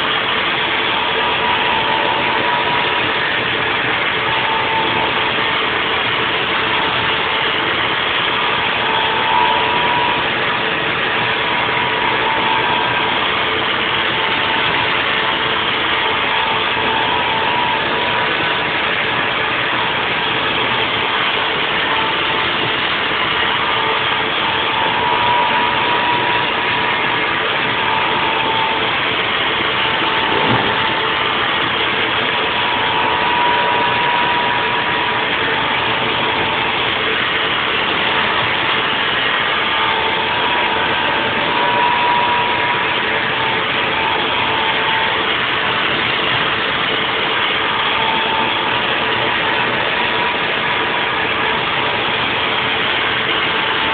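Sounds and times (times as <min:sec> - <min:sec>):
high cutter whine: 0:00.0 - 0:53.9
machine hum: 0:00.0 - 0:53.9
milling machine cutting: 0:00.0 - 0:53.9.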